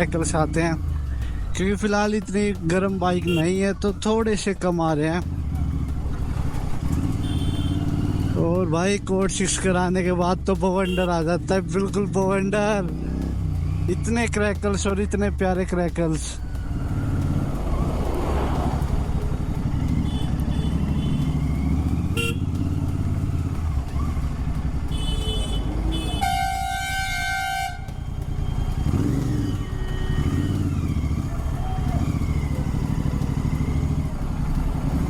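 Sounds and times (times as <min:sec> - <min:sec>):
motorcycle engine running: 0:00.0 - 0:35.0
vehicle horns honking: 0:03.2 - 0:03.6, 0:07.0 - 0:08.0, 0:10.8 - 0:11.2, 0:19.9 - 0:21.4, 0:22.1 - 0:22.8, 0:24.8 - 0:30.8.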